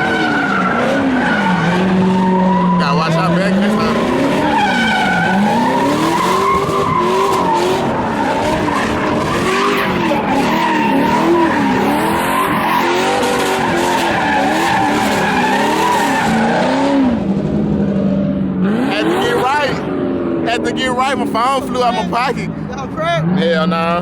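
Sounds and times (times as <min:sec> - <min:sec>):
tyres squealing: 0:00.0 - 0:16.8, 0:18.7 - 0:19.9
car engine revving: 0:00.0 - 0:24.0.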